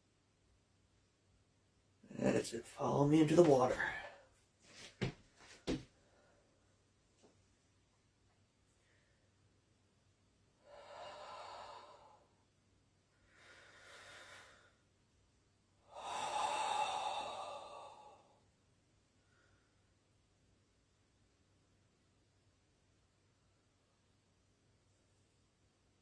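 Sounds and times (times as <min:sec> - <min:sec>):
person breathing out heavily: 0:10.6 - 0:12.4, 0:13.3 - 0:14.8, 0:15.9 - 0:18.4.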